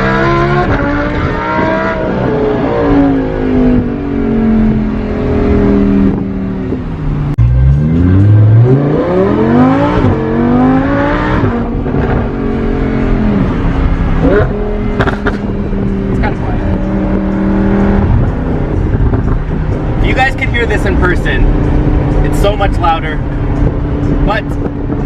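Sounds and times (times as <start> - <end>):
sports car engine accelerating: 0.0 - 25.0
exhaust cracks: 13.4 - 25.0.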